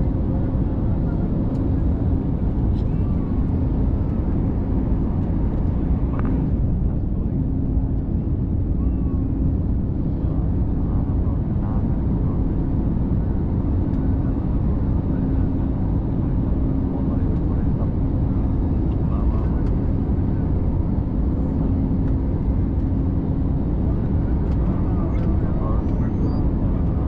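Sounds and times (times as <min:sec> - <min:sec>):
airliner engine and airflow rush: 0:00.0 - 0:27.0
constant low hum: 0:00.0 - 0:27.0
faint voices: 0:08.8 - 0:22.4, 0:23.1 - 0:27.0.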